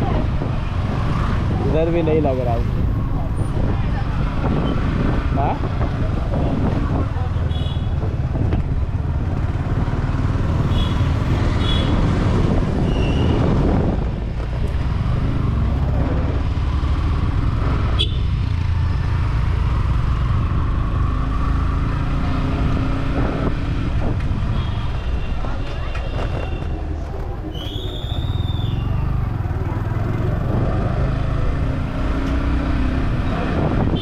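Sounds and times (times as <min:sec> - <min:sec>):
road and wind noise: 0:00.0 - 0:34.0
motorcycle engine running: 0:06.0 - 0:12.6.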